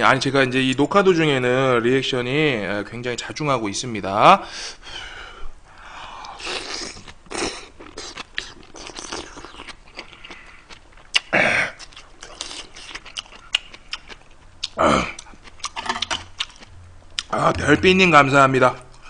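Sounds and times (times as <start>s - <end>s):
person chewing food: 6.2s - 17.4s.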